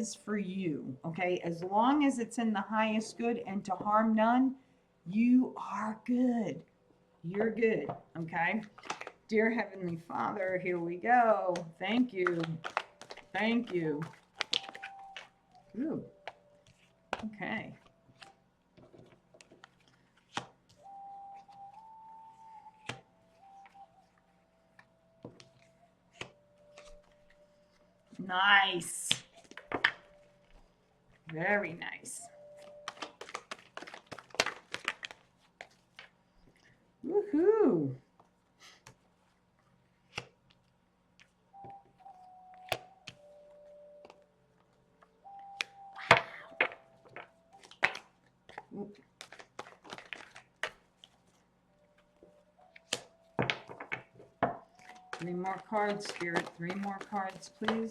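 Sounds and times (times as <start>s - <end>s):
faint held musical tone: 0.0s - 8.7s, 9.3s - 18.5s, 20.7s - 33.2s, 41.5s - 47.8s, 51.2s - 57.9s
cards being shuffled: 8.6s - 9.2s, 11.4s - 21.9s, 22.5s - 27.8s, 32.5s - 36.2s, 45.5s - 51.4s, 52.0s - 57.9s
card snaps: 14.4s - 15.3s, 32.8s - 35.2s, 54.8s - 57.9s.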